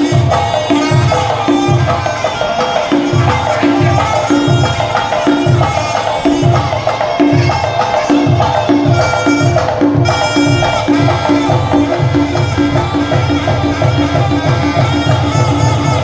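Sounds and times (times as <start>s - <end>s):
drum strokes: 0.0s - 16.0s
reedy oboe melody: 0.0s - 16.0s.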